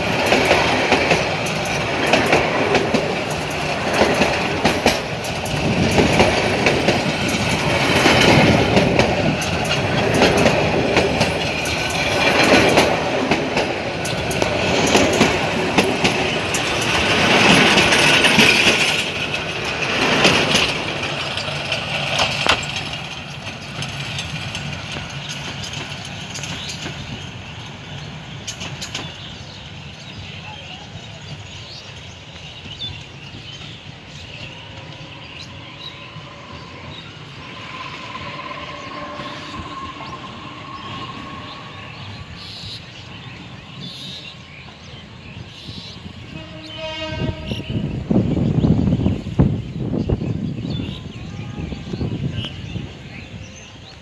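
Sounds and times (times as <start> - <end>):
train wheels clicking over rail joints: 0.0 - 30.3.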